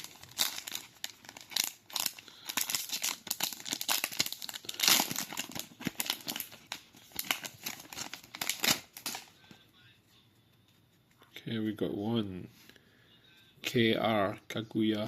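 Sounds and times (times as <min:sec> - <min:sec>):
card pack wrapper crinkling and tearing: 0:00.0 - 0:09.4.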